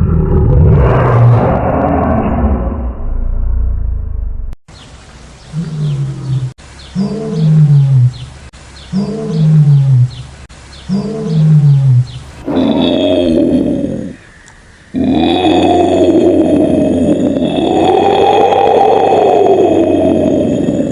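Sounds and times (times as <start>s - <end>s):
big cat roaring: 5.5s - 8.2s, 8.9s - 10.3s, 10.9s - 14.2s, 14.9s - 20.9s.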